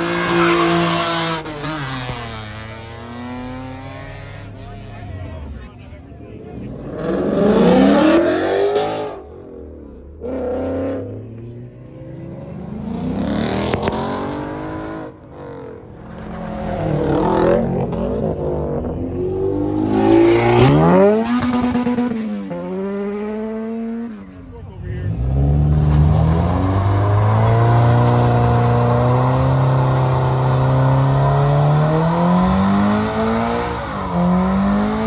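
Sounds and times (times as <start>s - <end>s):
car engines revving: 0.0s - 35.0s.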